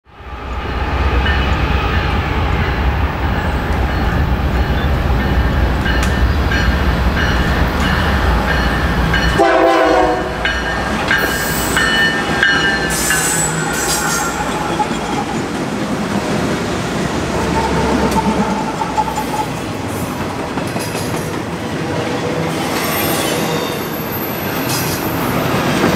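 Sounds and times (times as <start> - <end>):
rail noise: 0.0 - 25.9
diesel locomotive engine rumble: 0.1 - 22.8
train horn blast: 9.3 - 10.6, 17.2 - 19.2
train wheel squeal: 10.6 - 15.6, 17.3 - 20.2, 22.1 - 25.9.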